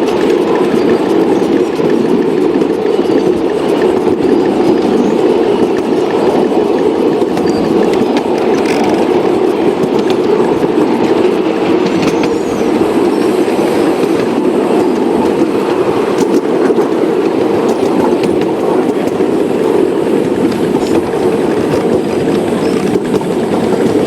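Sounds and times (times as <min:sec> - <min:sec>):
model train rumbling: 0:00.0 - 0:24.0.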